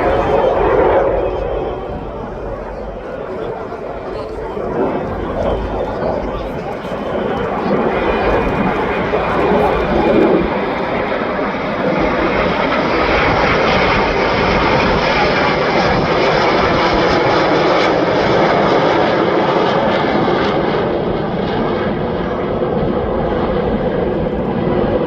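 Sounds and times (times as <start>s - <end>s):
aircraft engine rush: 0.0s - 25.0s.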